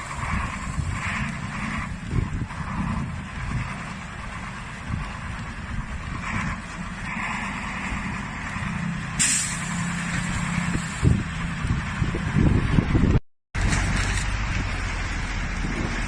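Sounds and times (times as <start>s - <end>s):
truck engine rumble: 0.0s - 16.0s
air brakes hiss: 9.2s - 9.9s.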